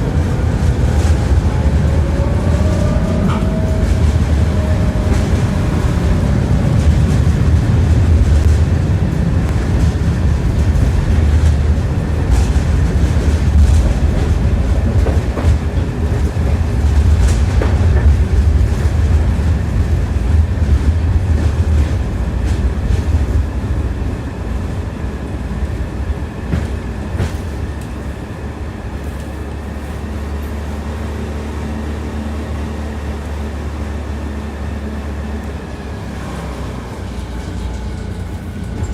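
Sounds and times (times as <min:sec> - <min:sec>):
low rumble: 0:00.0 - 0:23.7
tram wheels clattering over rail joints: 0:00.0 - 0:38.9.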